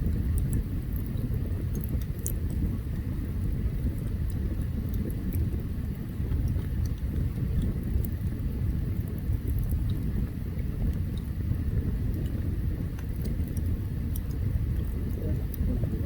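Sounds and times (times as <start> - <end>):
campfire rumble: 0.0 - 16.0
fire crackles and pops: 0.0 - 16.0.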